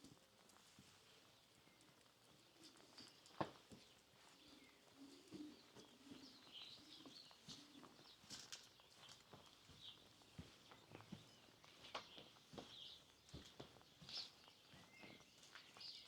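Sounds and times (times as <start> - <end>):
small birds chirping: 0.5 - 16.0
pigeons cooing: 4.5 - 8.0
footsteps on street: 8.4 - 15.6.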